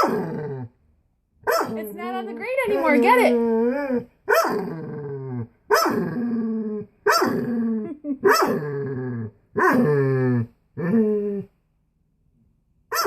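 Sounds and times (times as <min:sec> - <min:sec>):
dog barking: 0:01.4 - 0:01.8, 0:04.3 - 0:04.6, 0:05.7 - 0:06.1, 0:07.1 - 0:07.4, 0:08.2 - 0:08.6.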